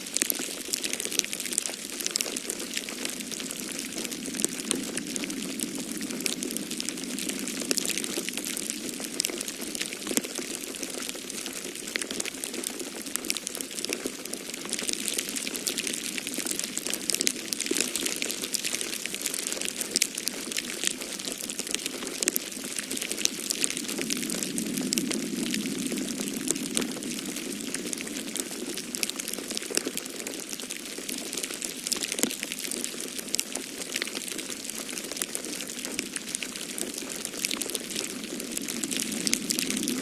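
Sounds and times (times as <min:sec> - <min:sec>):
wood fire crackling: 0:00.1 - 0:40.0
steady rushing noise: 0:03.0 - 0:10.1, 0:22.5 - 0:29.0, 0:37.2 - 0:40.0.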